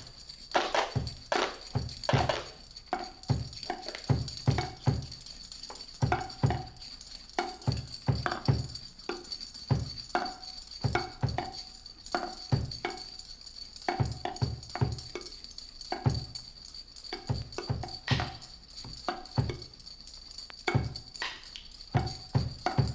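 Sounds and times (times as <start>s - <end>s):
drum kit thumps and tom hits: 0.6s - 2.4s.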